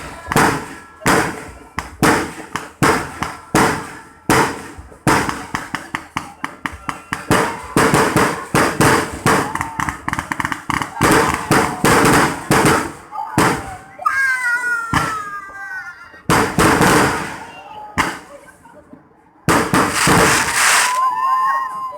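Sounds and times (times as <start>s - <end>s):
fireworks crackling: 0.0s - 13.7s, 19.5s - 21.2s
fireworks bangs: 0.0s - 13.8s, 16.3s - 18.4s, 19.5s - 21.2s.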